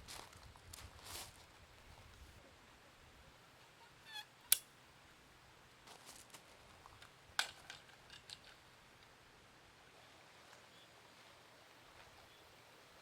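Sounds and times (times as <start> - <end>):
short squeak: 3.7 - 4.6.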